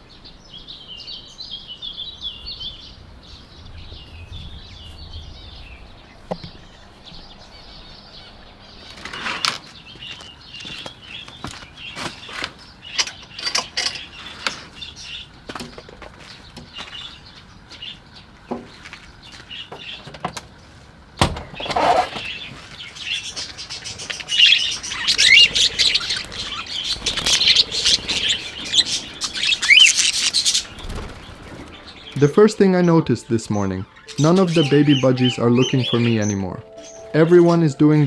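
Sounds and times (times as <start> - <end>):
budgerigars chirping: 0.4 - 15.4, 16.2 - 20.1, 21.5 - 37.7
bird wing flaps: 21.7 - 32.2.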